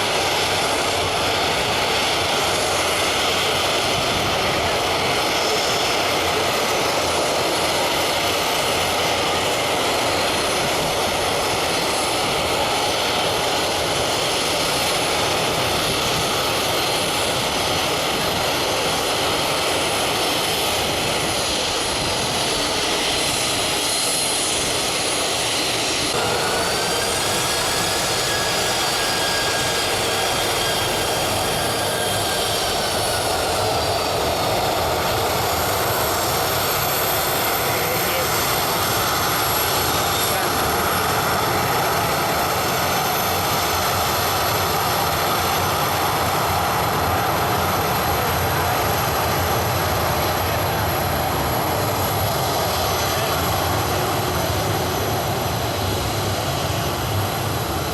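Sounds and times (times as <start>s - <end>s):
high jet engine whine: 0.0s - 57.9s
jet engines roaring: 0.0s - 57.9s.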